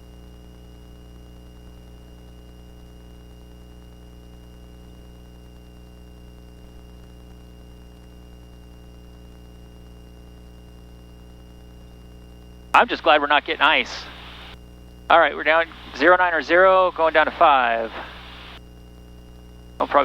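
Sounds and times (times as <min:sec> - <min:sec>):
aircraft cockpit drone: 0:12.8 - 0:18.6.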